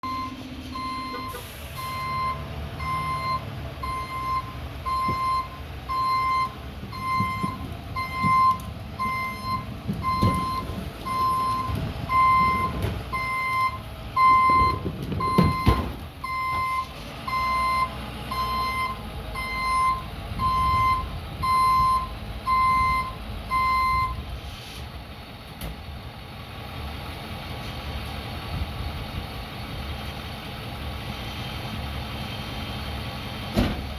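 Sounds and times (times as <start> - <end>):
truck reversing alarm beeping: 0.0 - 24.4
truck engine running: 0.0 - 33.9.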